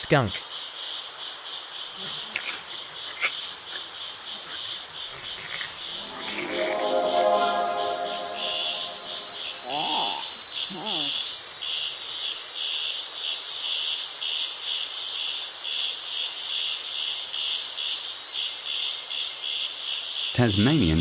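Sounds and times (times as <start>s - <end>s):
crickets chirping: 0.4s - 6.1s, 9.3s - 15.9s.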